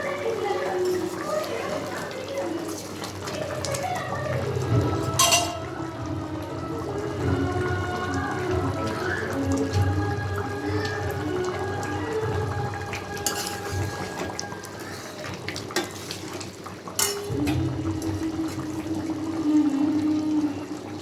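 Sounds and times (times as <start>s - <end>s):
metal utensils clinking on pots: 5.0s - 5.9s, 13.2s - 14.3s, 16.9s - 17.6s.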